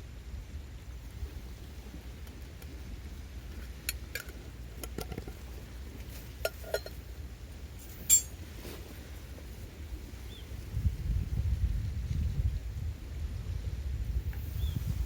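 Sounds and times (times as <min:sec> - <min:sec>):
low rumble of wind or surf: 0:00.0 - 0:15.0
sharp metallic clinks: 0:07.8 - 0:08.4.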